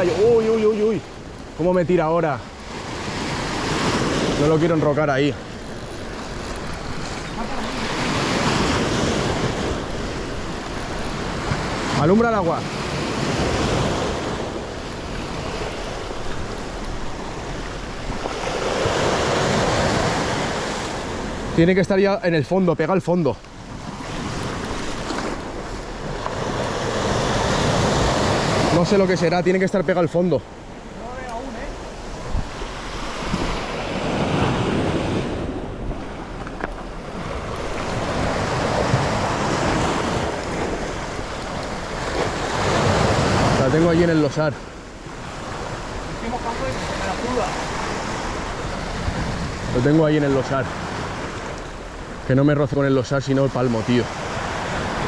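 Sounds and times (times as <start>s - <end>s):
surf on rocky shore: 0.0s - 55.0s
wind buffeting microphone: 3.0s - 21.6s, 31.7s - 52.3s.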